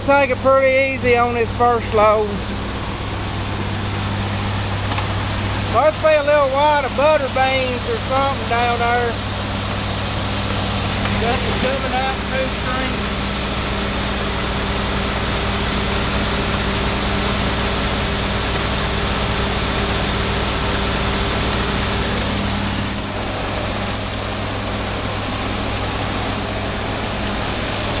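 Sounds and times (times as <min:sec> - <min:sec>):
engine running: 0:00.0 - 0:28.0.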